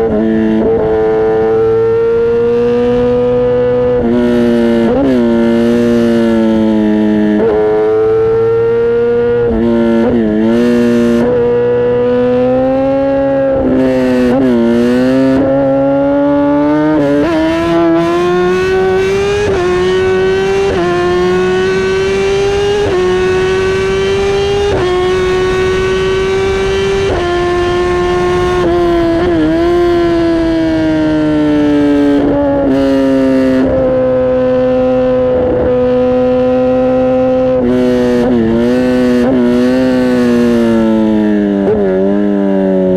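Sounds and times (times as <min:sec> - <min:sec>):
motorcycle engine revving through gears: 0:00.0 - 0:42.9.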